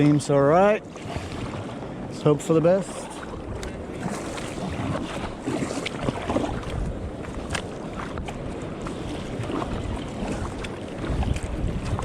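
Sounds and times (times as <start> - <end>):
water splashing around hull: 0.0 - 12.0
wind buffeting microphone: 3.0 - 12.0.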